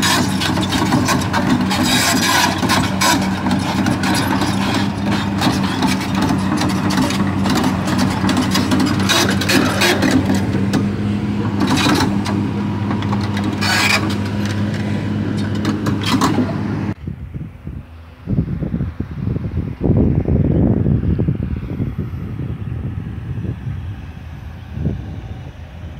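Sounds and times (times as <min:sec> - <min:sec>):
tracks clanking and scraping: 0:00.0 - 0:17.0
diesel engine running: 0:00.0 - 0:25.9
wind noise: 0:15.9 - 0:25.9.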